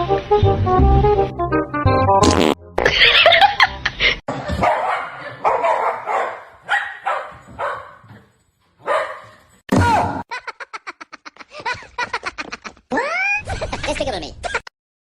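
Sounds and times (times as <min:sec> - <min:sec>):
dog barking: 0:04.6 - 0:09.5.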